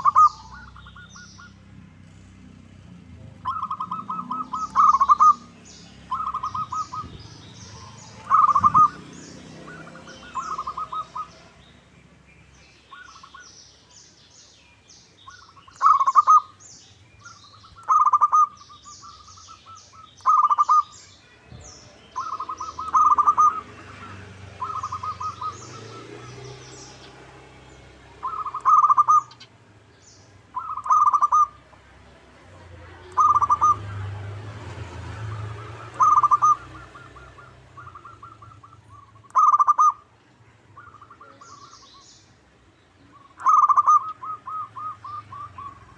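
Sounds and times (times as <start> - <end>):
dove cooing: 0.0 - 1.6, 3.2 - 11.6, 15.3 - 16.6, 17.2 - 20.9, 22.1 - 27.2, 28.2 - 29.5, 30.5 - 31.6, 33.0 - 34.1, 35.2 - 40.0, 40.7 - 41.9, 43.1 - 45.9
small birds chirping: 0.0 - 45.9.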